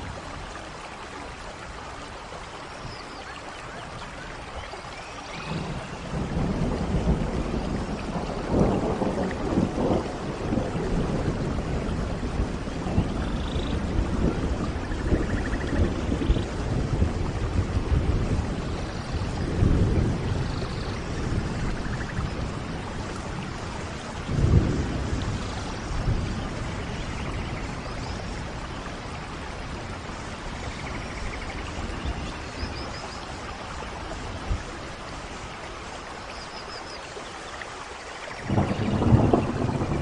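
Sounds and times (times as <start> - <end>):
steady rain: 0.0 - 40.0
thunder rumbles: 5.3 - 35.6, 38.3 - 40.0.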